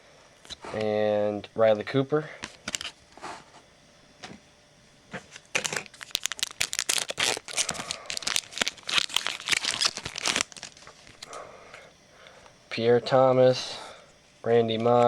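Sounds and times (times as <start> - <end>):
plastic wrapper tearing and crinkling: 5.5 - 11.3.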